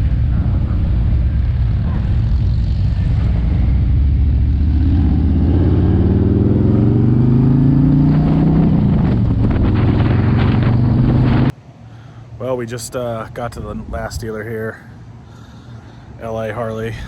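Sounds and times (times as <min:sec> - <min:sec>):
motorcycle engine accelerating: 0:00.0 - 0:11.5.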